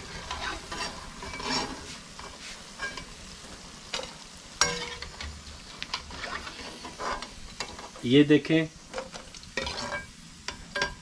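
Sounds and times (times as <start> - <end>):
metal ladle scraping pan: 0.0 - 3.1, 3.9 - 8.0, 8.9 - 11.0
deep-frying sizzle in oil: 0.0 - 11.0.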